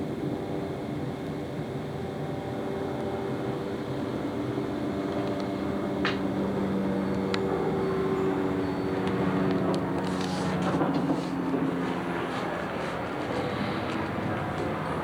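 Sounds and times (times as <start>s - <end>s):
vehicle engine humming: 4.9s - 15.0s.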